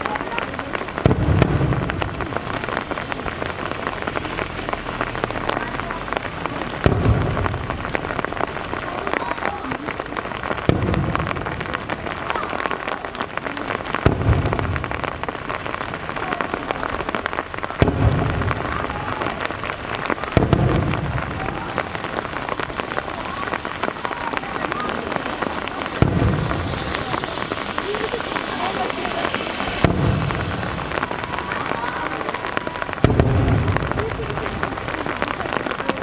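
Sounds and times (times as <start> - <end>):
steady rain: 0.0 - 36.0
firework shell bursting: 17.8 - 34.7.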